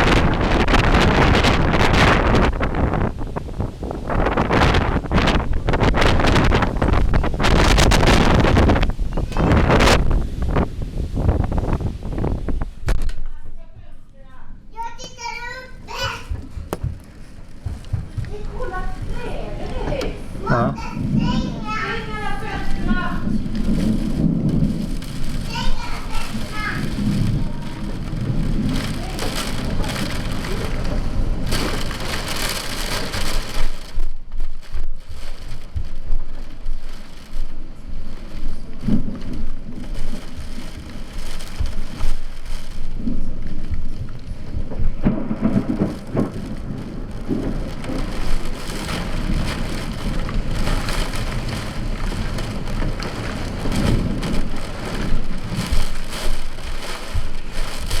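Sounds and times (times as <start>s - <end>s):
heavy rain pouring: 0.0s - 13.2s, 14.6s - 58.0s
thunder rumbling: 0.0s - 58.0s.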